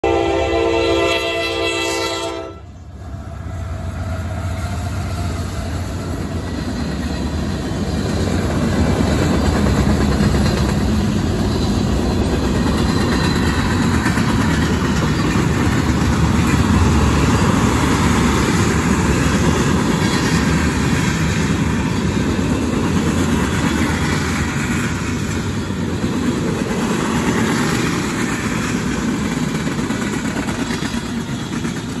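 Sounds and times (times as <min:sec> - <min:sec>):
train horn blast: 0:00.0 - 0:02.8
freight train rumbling on rails: 0:00.0 - 0:32.0.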